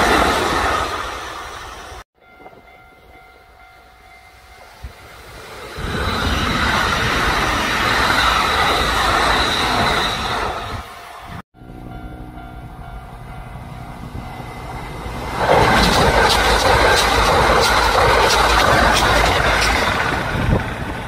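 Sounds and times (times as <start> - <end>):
electric train passing: 0.0 - 21.0
high train whine: 0.0 - 21.0.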